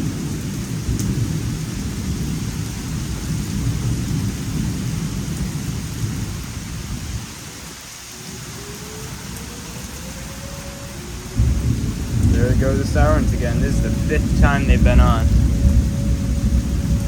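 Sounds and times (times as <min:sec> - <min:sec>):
steady rain: 0:00.0 - 0:17.0
thunder rumbling: 0:00.0 - 0:17.0
warning siren winding up: 0:08.2 - 0:14.2.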